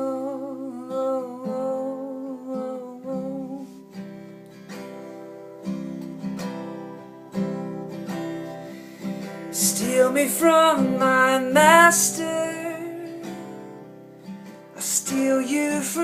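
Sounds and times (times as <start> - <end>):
man singing: 0.0 - 3.7, 9.5 - 13.6, 14.8 - 16.0
acoustic guitar strummed: 0.0 - 16.0.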